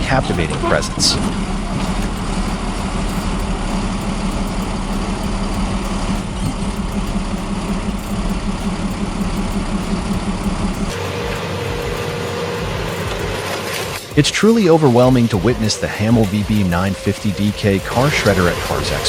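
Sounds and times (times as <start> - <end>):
machine thin steady tone: 0.0 - 14.2
heavy machine engine running: 0.0 - 19.0.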